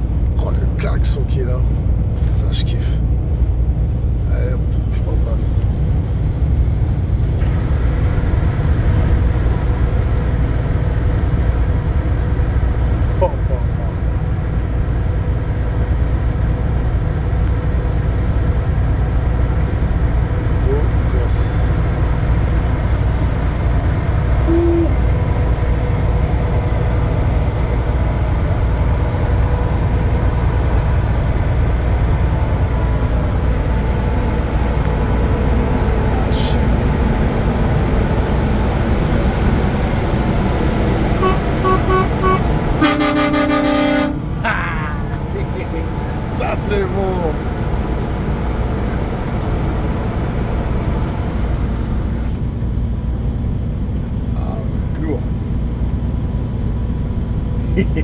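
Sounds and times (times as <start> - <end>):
vehicle engine and road rumble: 0.0 - 58.0
faint steady whine: 7.3 - 56.6
short horn toots: 24.4 - 25.1, 41.2 - 44.3
loud lorry air horn blast: 24.4 - 25.2, 41.2 - 44.4.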